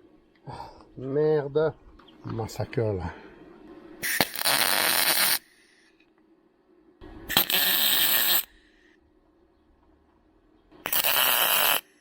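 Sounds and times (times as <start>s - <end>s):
electric welder crackling hiss: 4.0s - 5.5s, 7.3s - 8.5s, 10.8s - 11.9s.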